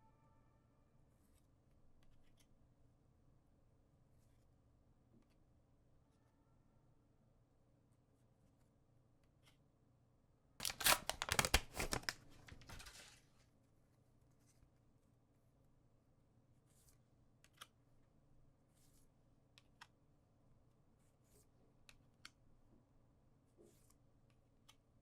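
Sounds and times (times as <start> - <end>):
wrapper tearing open: 10.6 - 13.2.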